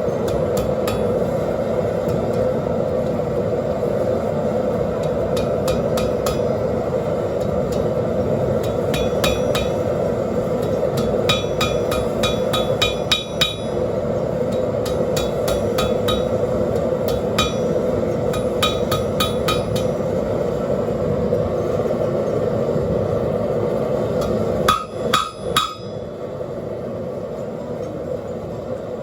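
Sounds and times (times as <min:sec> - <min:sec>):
gas forge burner roar: 0:00.0 - 0:29.0
hammer ringing on anvil: 0:08.6 - 0:09.8, 0:10.6 - 0:13.8, 0:14.5 - 0:16.4, 0:17.1 - 0:20.0, 0:24.2 - 0:26.0.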